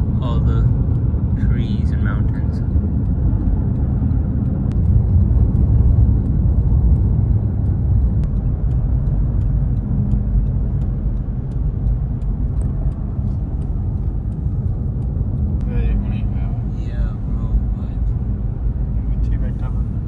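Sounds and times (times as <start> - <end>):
car road rumble inside cabin: 0.0 - 20.0
faint ticks: 0.9 - 16.2.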